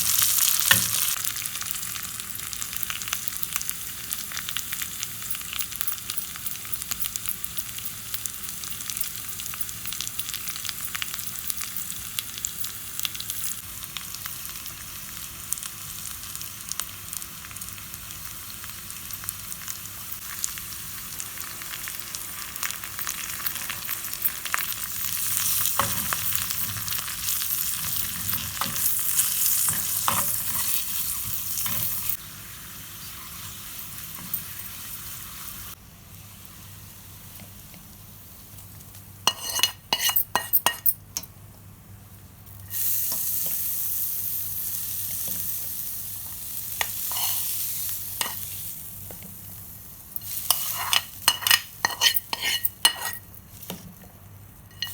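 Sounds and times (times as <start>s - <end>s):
food sizzling in oil: 0.0s - 41.0s, 42.4s - 54.9s
sharp clinks: 5.2s - 13.6s.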